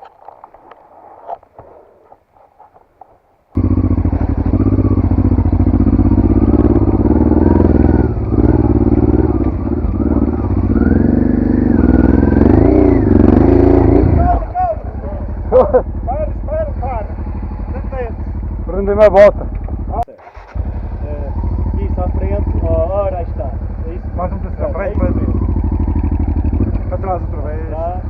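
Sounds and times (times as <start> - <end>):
faint clicks and scrapes: 0.0 - 3.3
motorcycle engine running: 3.6 - 28.0.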